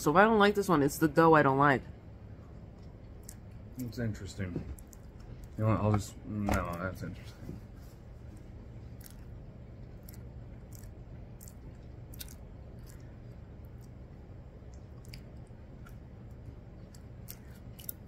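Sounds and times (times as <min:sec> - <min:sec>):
low steady hum: 0:00.0 - 0:18.0
person chewing pastry: 0:02.5 - 0:03.9, 0:04.7 - 0:05.6, 0:07.9 - 0:18.0.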